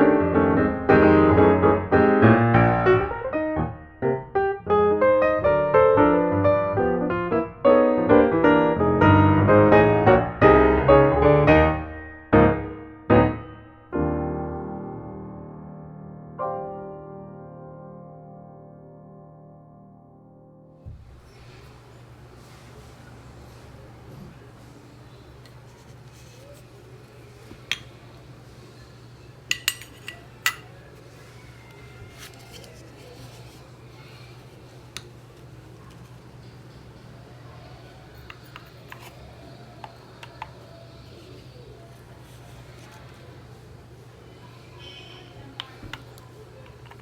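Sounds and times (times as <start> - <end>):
piano music: 0.0 - 20.9.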